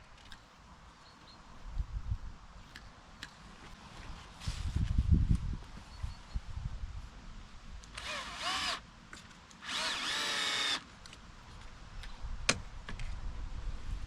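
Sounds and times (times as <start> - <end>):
electric drill running: 8.0 - 8.8, 9.6 - 10.8.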